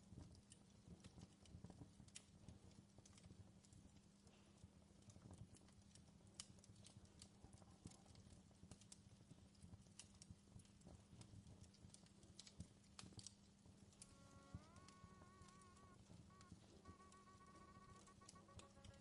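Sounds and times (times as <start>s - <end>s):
campfire crackling: 0.0s - 19.0s
low steady hum: 13.5s - 19.0s.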